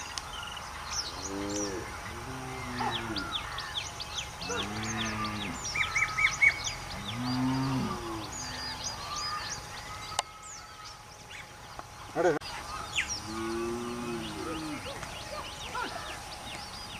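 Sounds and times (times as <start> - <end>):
small birds chirping: 0.0 - 16.9
cows mooing: 1.1 - 3.5, 4.4 - 6.1, 6.8 - 8.7, 13.2 - 14.9.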